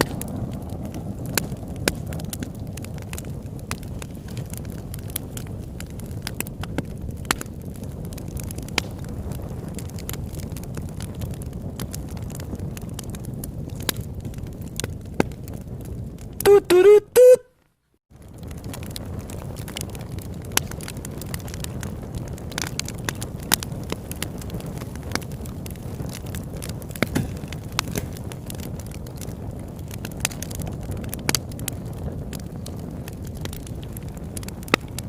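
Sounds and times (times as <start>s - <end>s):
low rumble of flames: 0.0s - 16.5s, 17.6s - 35.0s
wood crackling and popping: 0.0s - 35.0s.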